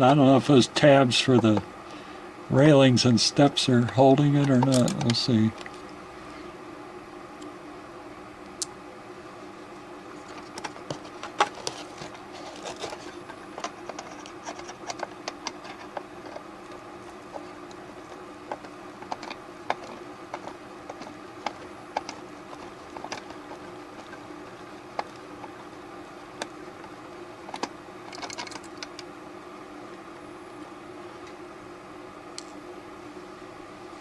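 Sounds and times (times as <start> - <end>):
steady low hum: 0.0 - 34.0
clicks taps and scrapes of handling: 10.2 - 29.1.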